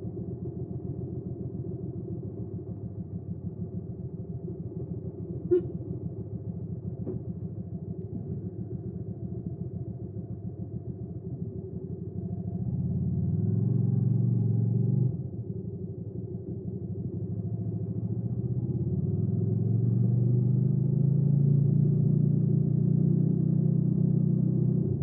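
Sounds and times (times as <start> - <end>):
motorcycle engine idling: 0.1 - 12.5.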